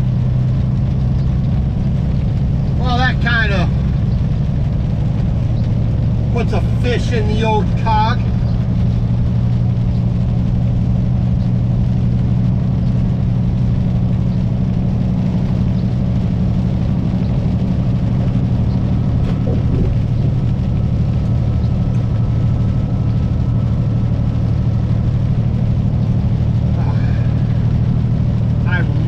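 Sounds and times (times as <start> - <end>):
truck diesel engine drone: 0.0 - 29.0.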